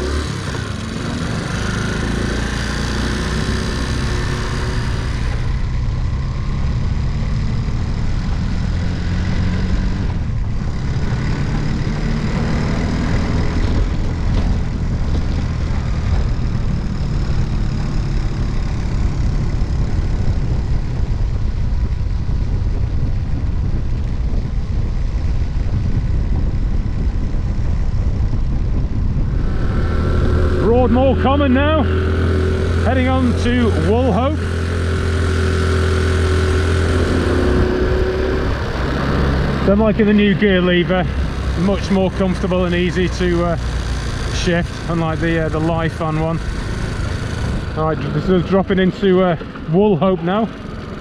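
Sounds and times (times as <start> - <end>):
moped engine running: 0.0 - 51.0
wind rushing over microphone: 0.0 - 51.0.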